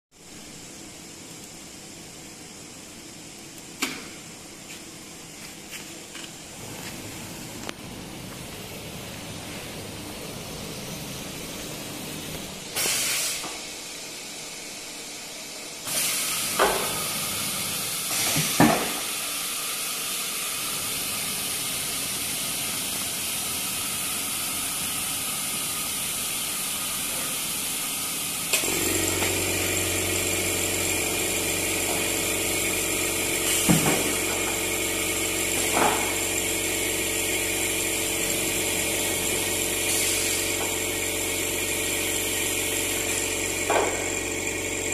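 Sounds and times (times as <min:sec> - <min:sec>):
mechanical hum with fixed tones: 0:00.1 - 0:44.9
compressed air hiss: 0:08.5 - 0:32.2, 0:33.0 - 0:43.2.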